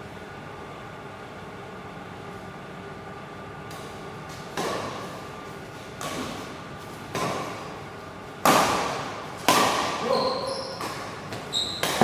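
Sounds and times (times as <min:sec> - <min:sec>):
badminton racket hitting shuttlecock: 0:08.4 - 0:12.0.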